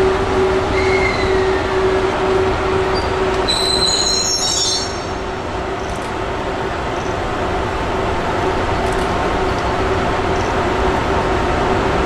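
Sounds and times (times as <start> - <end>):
high-pitched wheel squeal: 0.0 - 5.2
steady pulsing tone: 0.0 - 12.0
train cars rumbling on rails: 0.0 - 12.0.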